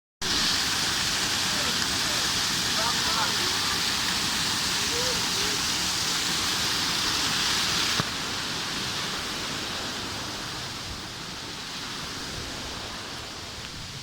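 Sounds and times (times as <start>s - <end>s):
waterfall rushing hiss: 0.2s - 14.0s.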